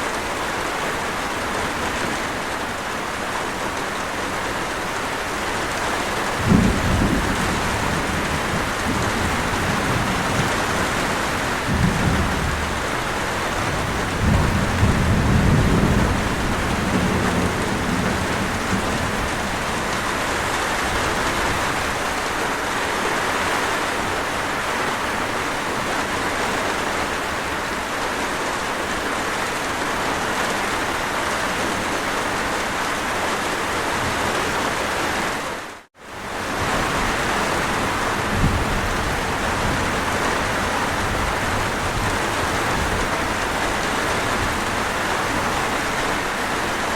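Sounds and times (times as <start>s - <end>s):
heavy rain falling: 0.0s - 46.9s
distant thunder rumble: 6.2s - 22.1s, 36.6s - 45.9s.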